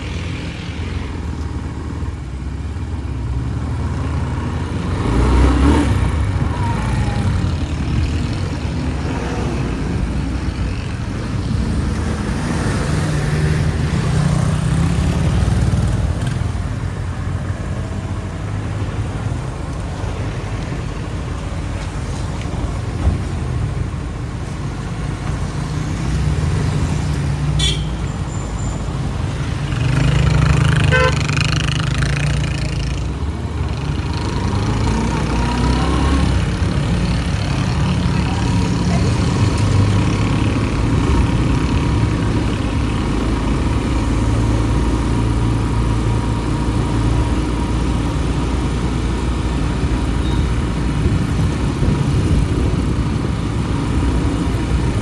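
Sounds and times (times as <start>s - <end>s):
street traffic: 0.0s - 55.0s
vehicle horn toot: 27.6s - 28.5s, 30.9s - 31.3s.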